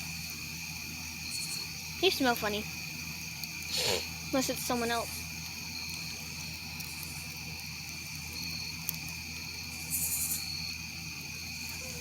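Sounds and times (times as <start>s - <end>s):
night insects trilling: 0.0s - 12.0s
burst of high hiss: 3.7s - 4.3s.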